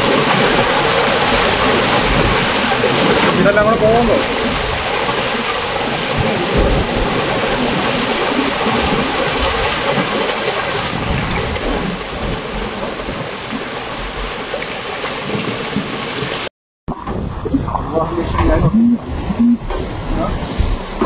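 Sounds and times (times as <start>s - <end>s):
storm water rushing: 0.0s - 21.0s
uneven low rumble: 16.9s - 21.0s.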